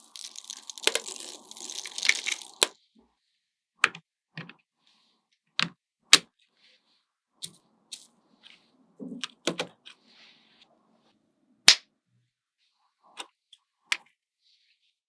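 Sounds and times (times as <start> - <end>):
magnet balls rattling: 0.0 - 2.7
magnet balls snapping together: 0.0 - 2.7.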